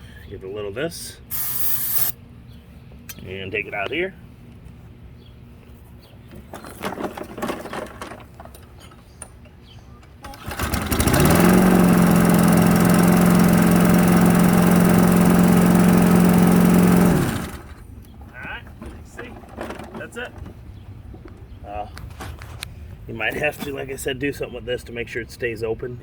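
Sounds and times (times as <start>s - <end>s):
lawn mower engine running: 1.3s - 2.1s, 10.2s - 17.8s.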